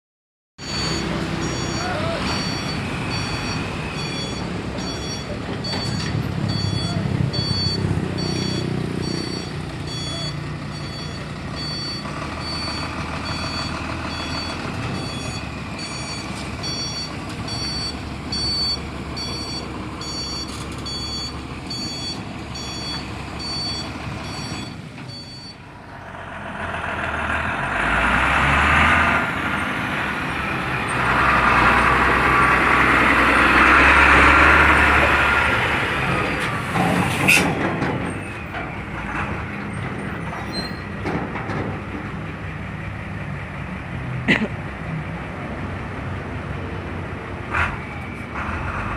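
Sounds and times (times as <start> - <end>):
truck reversing alarm beeping: 0.6 - 25.9
diesel engine revving: 0.6 - 48.9.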